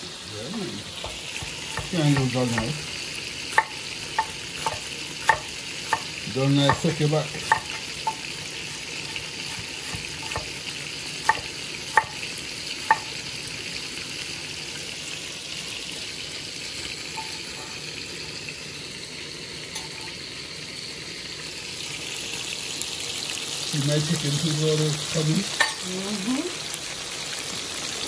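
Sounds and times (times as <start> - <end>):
chicken frying in oil: 0.0 - 28.0
knife chopping on wooden board: 1.0 - 2.8, 3.5 - 10.6, 11.2 - 12.2, 12.9 - 13.1.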